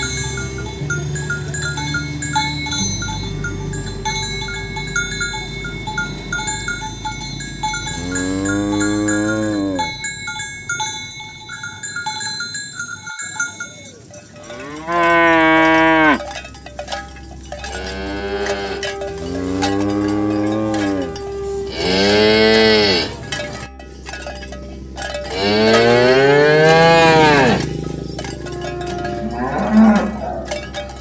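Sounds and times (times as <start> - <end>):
cowbells clinking: 0.0 - 31.0
cow mooing: 7.8 - 10.0, 14.4 - 16.3, 17.6 - 23.6, 25.3 - 31.0.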